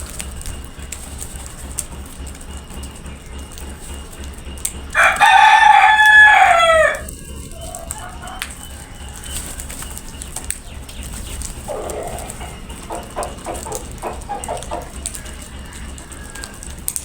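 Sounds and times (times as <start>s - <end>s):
rooster crowing: 4.9s - 10.6s, 11.6s - 17.0s.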